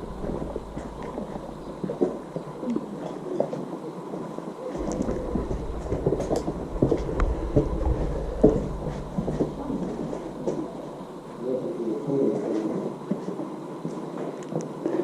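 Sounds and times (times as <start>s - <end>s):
low rumble on microphone: 0.0s - 3.1s, 4.8s - 13.4s.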